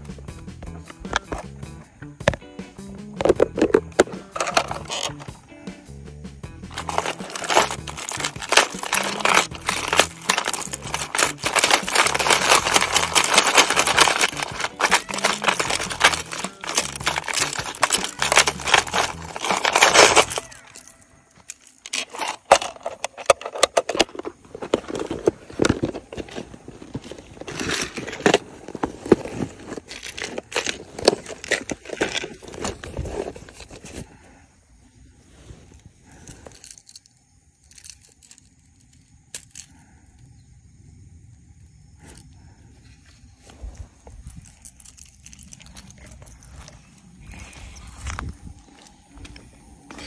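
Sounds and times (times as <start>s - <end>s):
scattered clicks and rustles: 3.2s - 5.4s, 6.7s - 34.0s, 36.1s - 39.9s, 44.1s - 50.0s
dense crackling and rustling: 3.6s - 5.3s, 6.7s - 20.9s, 21.5s - 34.1s.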